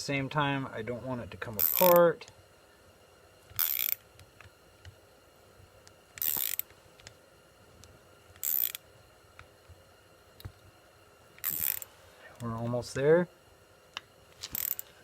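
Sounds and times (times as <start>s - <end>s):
ratchet wrench clicking: 1.6s - 2.0s, 3.6s - 4.0s, 6.2s - 6.7s, 8.4s - 8.8s, 11.4s - 11.9s, 14.4s - 14.9s.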